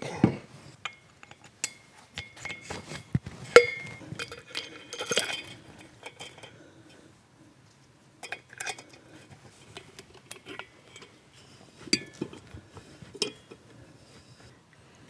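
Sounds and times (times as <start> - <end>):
metal parts clinking: 3.5 - 6.6.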